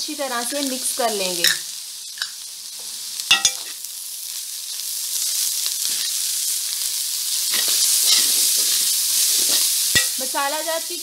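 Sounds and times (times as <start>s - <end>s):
food sizzling in a pan: 0.0s - 11.0s
spoon clinking against pan: 3.3s - 3.7s
spoon scraping pan: 7.5s - 10.2s.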